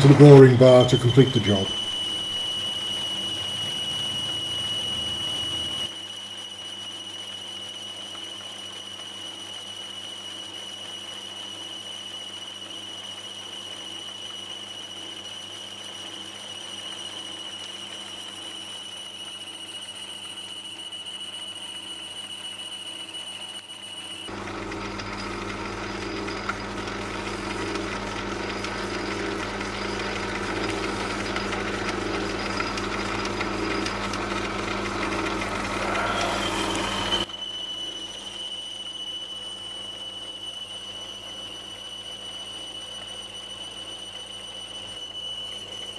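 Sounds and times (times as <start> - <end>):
lathe running with high tone: 0.0 - 45.9.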